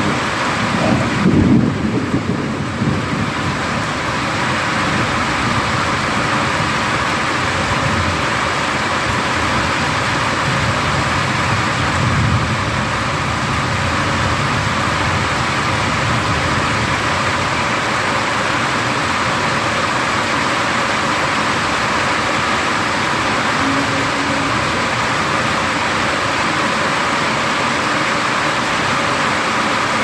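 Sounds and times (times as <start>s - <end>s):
low thunder rumble: 0.0s - 6.8s, 9.0s - 17.8s
heavy rain: 0.0s - 30.0s.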